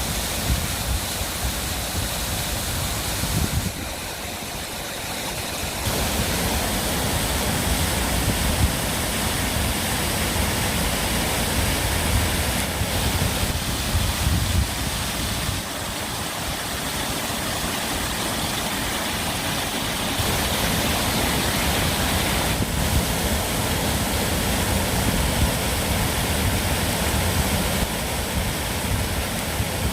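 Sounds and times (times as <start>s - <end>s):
stream water rushing: 0.0s - 29.9s.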